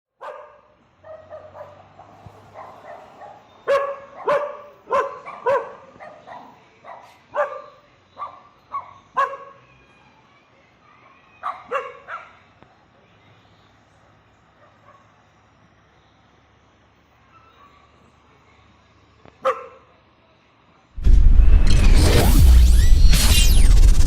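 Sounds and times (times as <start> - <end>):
dog barking: 0.2 - 9.7, 11.4 - 12.5, 14.6 - 15.3, 19.4 - 19.9.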